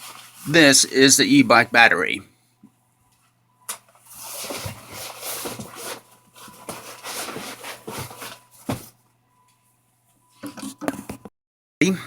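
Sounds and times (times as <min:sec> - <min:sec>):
gear rustling and scraping: 0:04.0 - 0:08.9.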